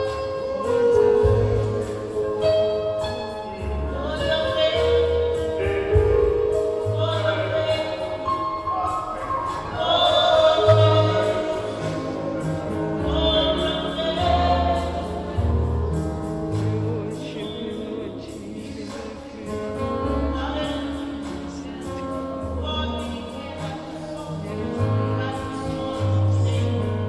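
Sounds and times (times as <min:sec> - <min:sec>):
steady bass line: 0:00.0 - 0:27.0
gospel choir singing: 0:06.8 - 0:20.6.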